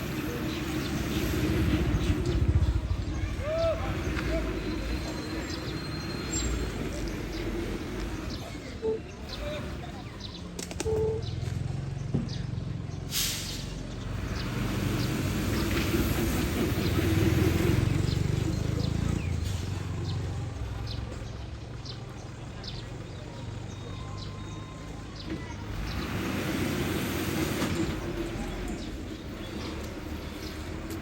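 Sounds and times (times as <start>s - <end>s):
truck diesel engine rumbling: 0.0s - 31.0s
short air hiss: 13.1s - 13.8s.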